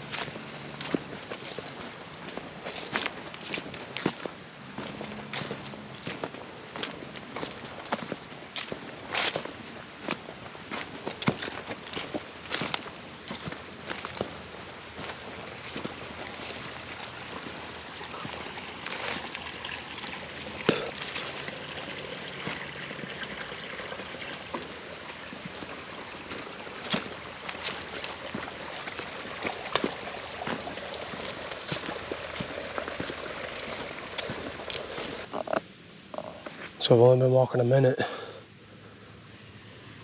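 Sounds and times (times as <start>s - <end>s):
footsteps through dry leaves: 0.0s - 19.5s, 20.5s - 22.8s, 24.4s - 35.3s
creek running: 0.0s - 40.0s.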